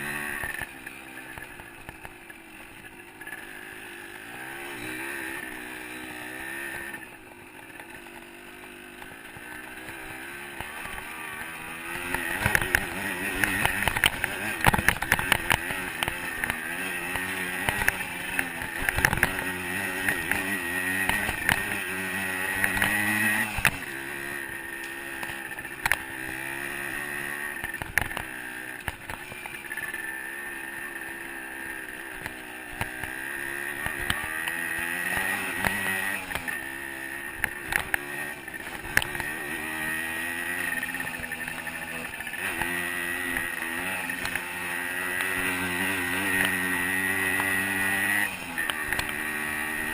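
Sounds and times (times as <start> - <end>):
dirt bike engine revving: 0.0 - 49.9
knocks and clicks from bike: 11.9 - 23.9, 24.8 - 26.8, 27.6 - 29.5.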